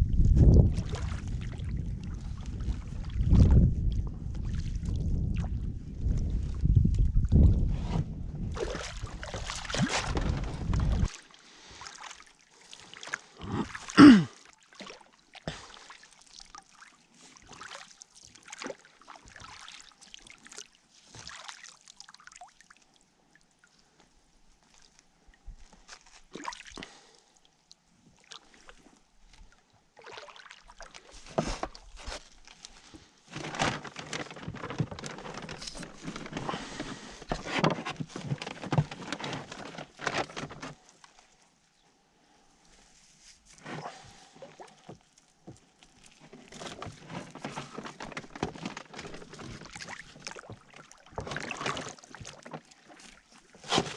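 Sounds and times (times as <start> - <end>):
wind rumbling on microphone: 0.0 - 11.1
water trickling and sloshing: 0.0 - 53.9.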